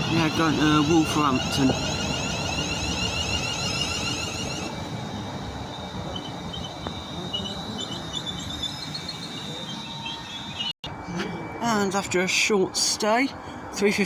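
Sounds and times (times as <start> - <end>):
electric train humming: 0.0 - 10.8
high-pitched whine: 0.0 - 12.2.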